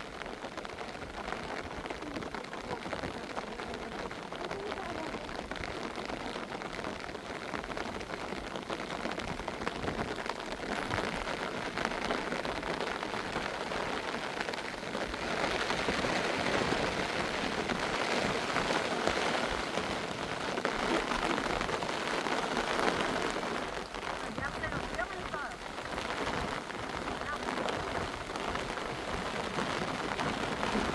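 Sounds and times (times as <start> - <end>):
rain falling: 0.0 - 30.9.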